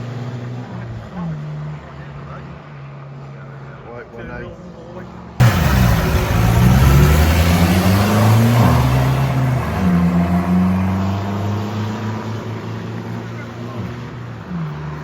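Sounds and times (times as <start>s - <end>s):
off-road engine revving: 5.4s - 15.0s.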